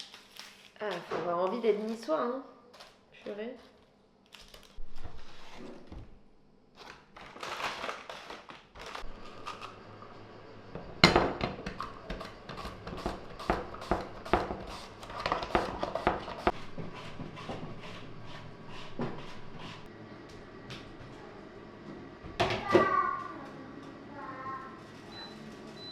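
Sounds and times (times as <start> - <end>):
knife chopping on cutting board: 12.1 - 14.7.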